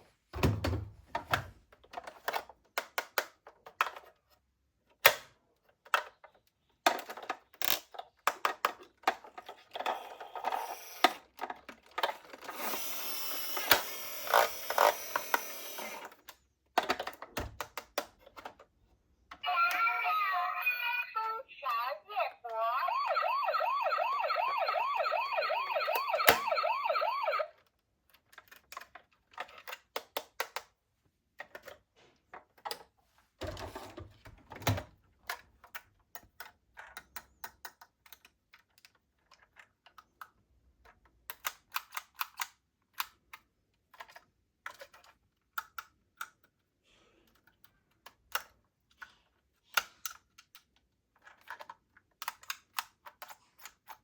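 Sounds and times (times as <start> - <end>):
plastic toy cars clicking: 1.7 - 19.4, 27.6 - 32.9, 34.7 - 54.0
toy police siren warbling: 19.4 - 27.5.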